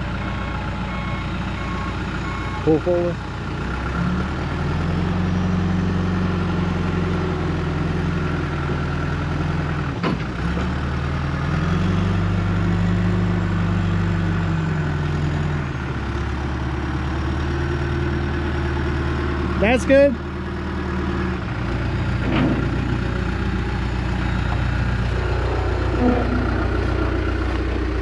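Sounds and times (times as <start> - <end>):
tractor engine under load: 20.6 - 28.0.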